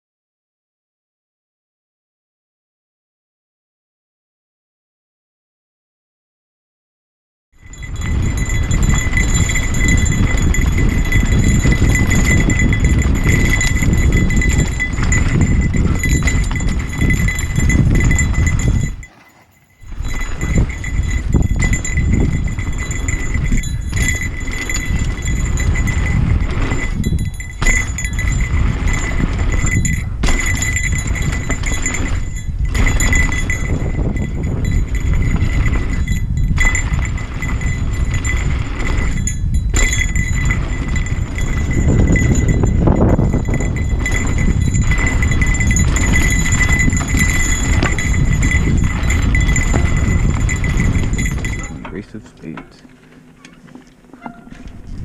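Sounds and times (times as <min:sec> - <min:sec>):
off-road vehicle rumble: 0:07.6 - 0:55.0.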